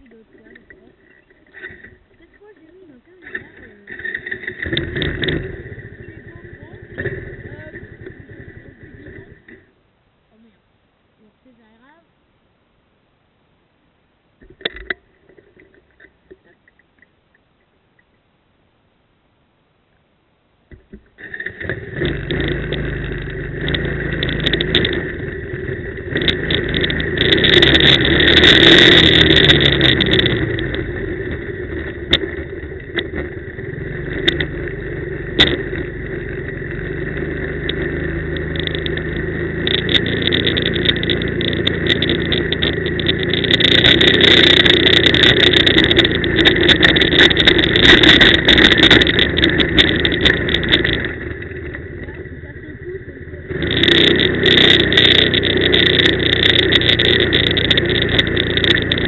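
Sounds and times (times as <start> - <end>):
knocks and clatter: 0.0 - 9.7, 20.7 - 52.3, 53.5 - 59.0
quad bike engine revving: 0.0 - 9.7, 21.2 - 59.0.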